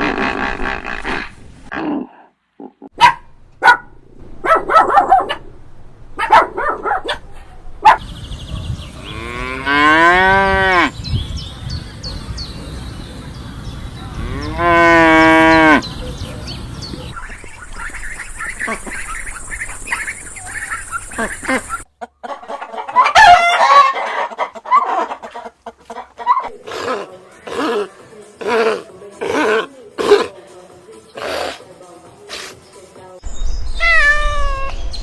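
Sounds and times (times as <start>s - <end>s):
cow mooing: 14.2s - 15.8s.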